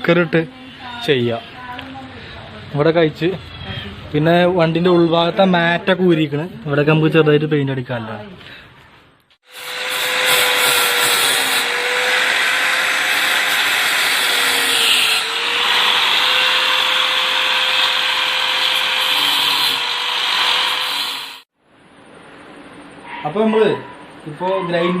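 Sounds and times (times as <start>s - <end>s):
electric grinder grinding steel: 9.4s - 21.5s.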